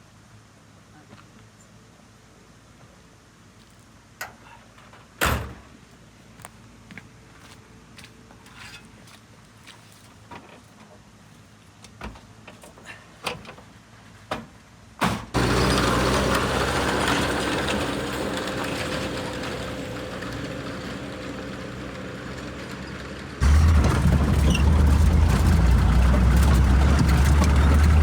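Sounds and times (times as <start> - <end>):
vehicle engine humming: 15.4 - 28.0.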